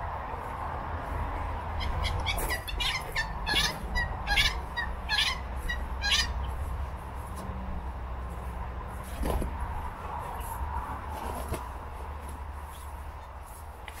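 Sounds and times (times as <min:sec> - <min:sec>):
low background rumble: 0:00.0 - 0:13.8.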